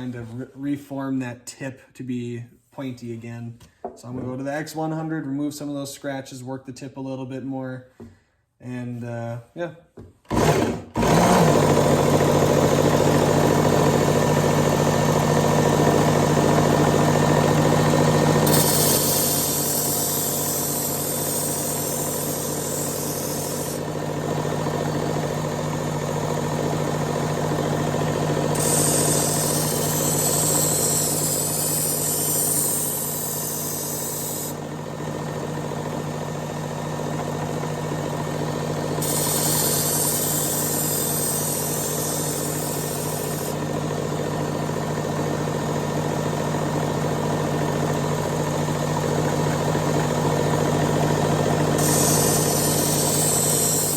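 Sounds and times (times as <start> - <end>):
belt sharpener motor hum: 10.3 - 45.6, 49.6 - 53.9
knife grinding on belt: 18.5 - 23.8, 28.6 - 34.5, 39.0 - 43.6, 51.8 - 53.9.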